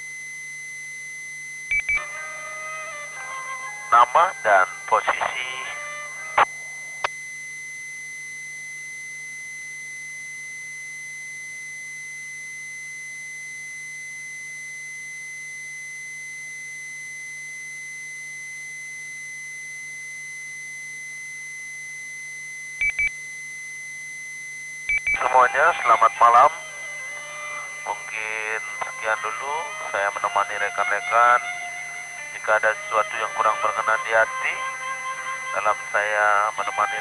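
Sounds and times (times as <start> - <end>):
brief beep: 1.7 - 2.1, 22.8 - 23.2, 24.5 - 25.4
high-pitched radio tone: 1.9 - 7.2, 25.1 - 37.0
faint low hum: 25.0 - 37.0.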